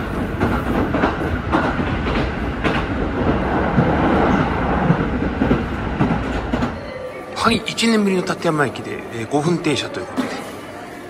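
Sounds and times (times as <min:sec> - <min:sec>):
train interior rumble: 0:00.0 - 0:06.8.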